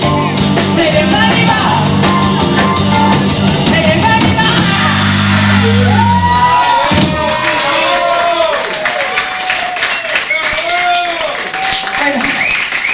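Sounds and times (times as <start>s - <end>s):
lead singer: 0.0s - 6.4s
live rock band playing: 0.0s - 7.5s.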